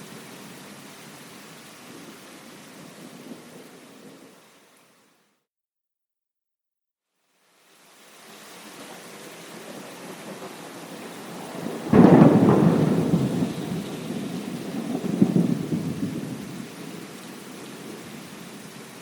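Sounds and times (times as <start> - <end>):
steady rain: 0.0 - 5.4, 7.2 - 19.0
thunder clap and rumble: 9.9 - 17.1.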